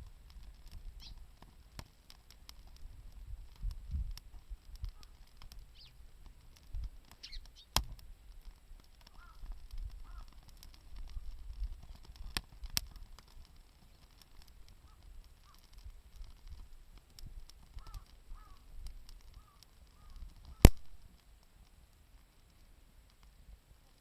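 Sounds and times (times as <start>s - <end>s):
campfire crackling and popping: 0.0s - 24.0s
crows cawing: 9.1s - 10.4s, 14.8s - 15.6s, 17.8s - 18.7s, 19.3s - 20.6s.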